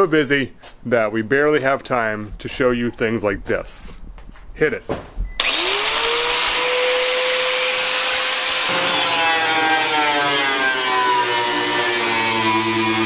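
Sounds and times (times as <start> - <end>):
power grinder grinding: 5.4 - 13.0.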